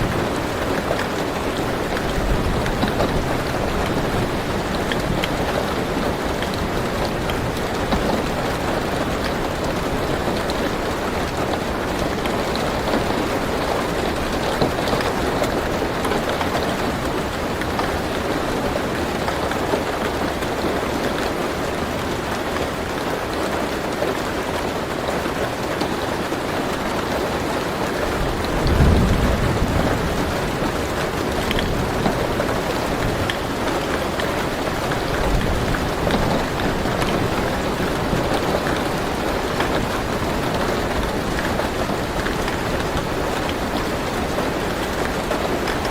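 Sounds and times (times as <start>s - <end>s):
rain drumming on car roof: 0.0s - 45.9s
thunder rumble: 28.1s - 43.7s.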